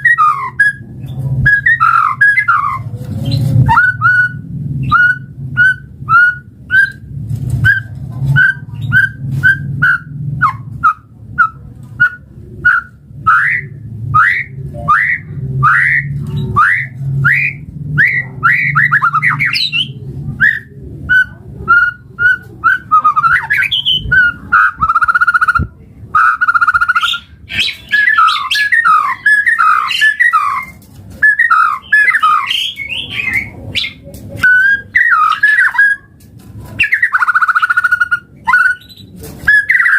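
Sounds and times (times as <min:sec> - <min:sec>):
bird singing loud whistles: 0:03.7 - 0:07.0, 0:07.6 - 0:25.6, 0:26.2 - 0:36.1.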